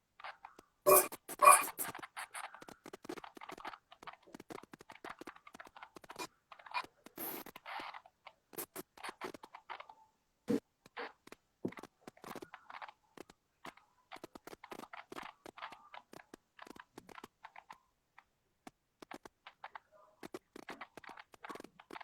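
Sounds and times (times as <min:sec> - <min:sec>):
scratching and scraping: 0:00.2 - 0:09.9.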